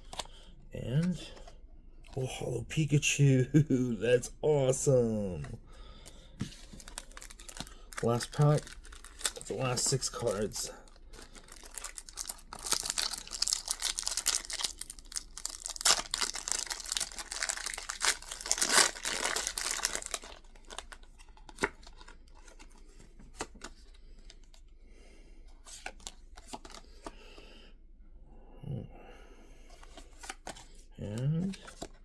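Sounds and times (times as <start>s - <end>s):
cards clicking and rustling: 6.4s - 23.9s, 25.7s - 27.2s, 29.8s - 30.8s
foil wrapper tearing and crinkling: 6.8s - 10.5s, 11.2s - 21.0s.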